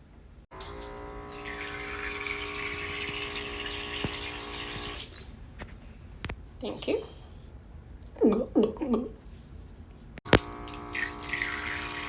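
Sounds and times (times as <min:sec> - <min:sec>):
small pump whirring: 0:00.5 - 0:05.3, 0:10.3 - 0:12.0
water pouring from faucet: 0:00.5 - 0:05.3, 0:10.3 - 0:12.0.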